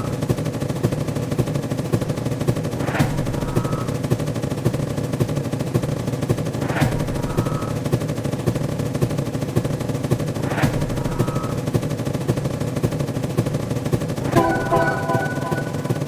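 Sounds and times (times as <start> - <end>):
brief tone: 3.5 - 4.0, 7.2 - 7.8, 11.1 - 11.6, 14.2 - 16.0
sharp impact sound effect: 14.2 - 16.0.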